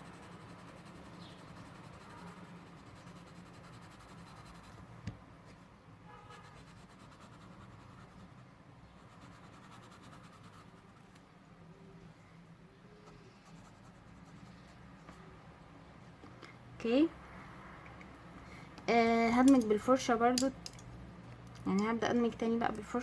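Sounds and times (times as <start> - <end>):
pencil scratching on paper: 0.0 - 4.8, 6.3 - 11.2, 13.0 - 14.8.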